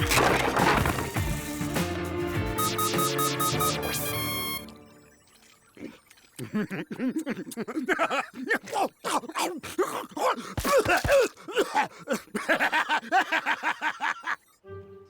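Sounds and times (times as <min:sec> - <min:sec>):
background music: 0:00.0 - 0:05.5, 0:14.6 - 0:15.0
cartoon character groaning and grunting: 0:06.9 - 0:12.2.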